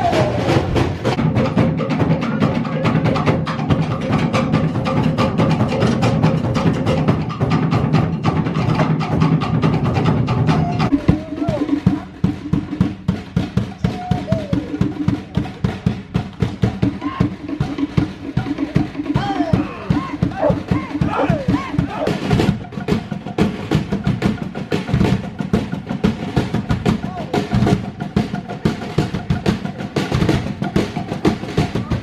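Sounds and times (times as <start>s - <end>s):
deep drum beat: 0.0s - 32.0s.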